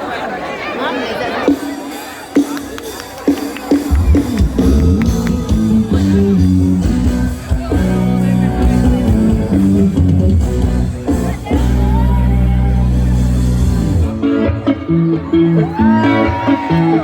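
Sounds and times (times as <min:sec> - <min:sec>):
drums: 0:01.4 - 0:17.0
live band playing loudly: 0:01.4 - 0:17.0
heavy bass: 0:03.9 - 0:17.0.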